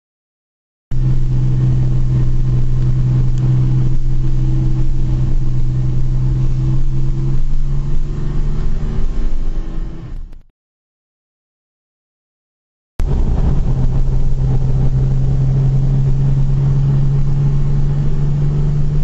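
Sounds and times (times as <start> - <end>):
car engine droning in cabin: 0.9 - 10.5, 13.0 - 19.0
road noise: 0.9 - 10.5, 13.0 - 19.0.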